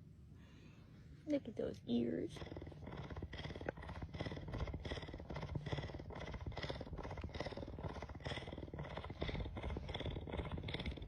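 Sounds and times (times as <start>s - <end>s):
cat purring: 1.5s - 11.0s.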